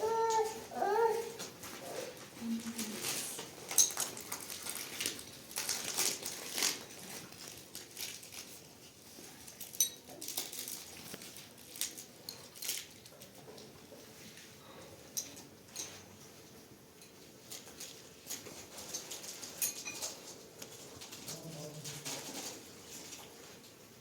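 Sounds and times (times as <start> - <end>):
dishes and cutlery clinking: 3.6 - 5.2, 9.6 - 10.6, 14.8 - 22.4.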